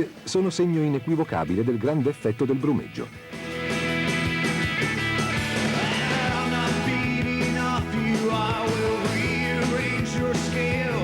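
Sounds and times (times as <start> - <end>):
rock music with electric guitar: 0.0 - 11.0
person singing: 5.7 - 11.0.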